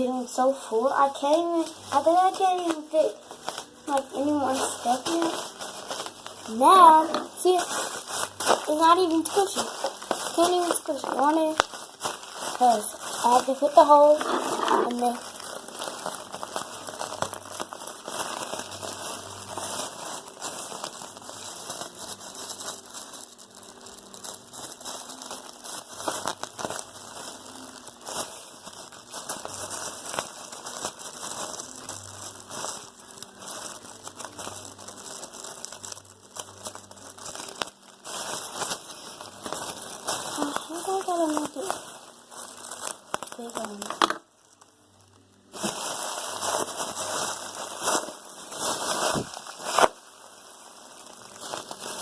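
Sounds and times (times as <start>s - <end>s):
plastic bag crinkling: 0.0s - 52.0s.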